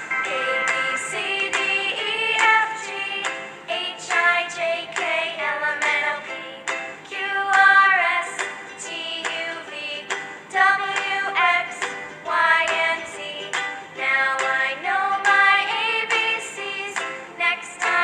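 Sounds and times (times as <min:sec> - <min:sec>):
music with steady beat: 0:00.0 - 0:05.2
woman singing: 0:00.3 - 0:18.0.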